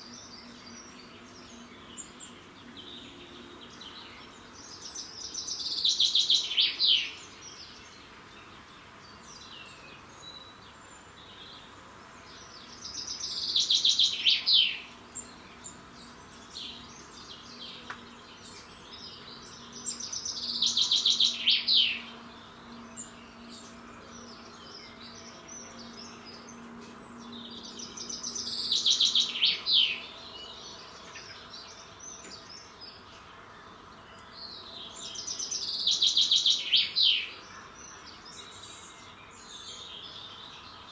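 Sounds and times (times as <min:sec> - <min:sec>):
songbird trilling: 0:19.1 - 0:22.2, 0:27.3 - 0:32.8, 0:34.9 - 0:40.1.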